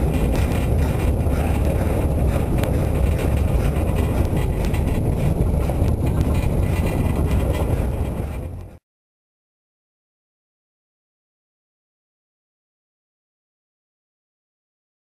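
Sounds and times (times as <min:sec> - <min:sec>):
train rumbling: 0:00.0 - 0:08.8
wind buffeting the microphone: 0:00.0 - 0:08.8.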